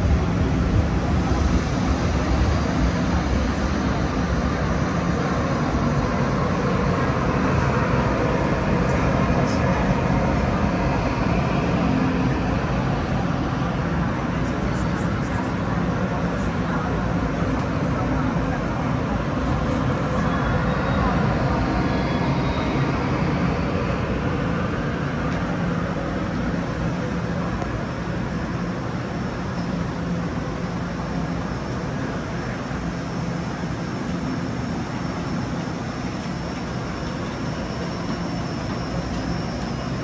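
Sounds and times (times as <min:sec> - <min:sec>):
train running drone: 0:00.0 - 0:40.0.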